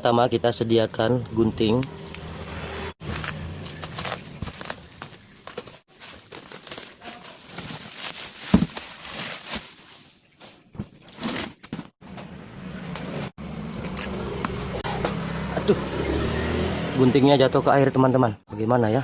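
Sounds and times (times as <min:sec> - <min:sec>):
packaging rustling and crinkling: 0:03.0 - 0:10.5.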